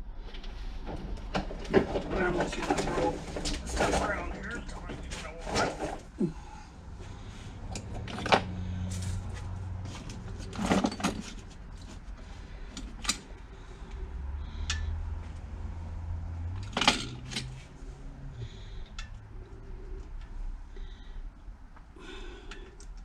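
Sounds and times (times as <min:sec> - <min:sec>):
metal tools clinking and clattering: 0:01.7 - 0:06.2, 0:07.7 - 0:09.3, 0:09.9 - 0:12.0, 0:16.6 - 0:17.6.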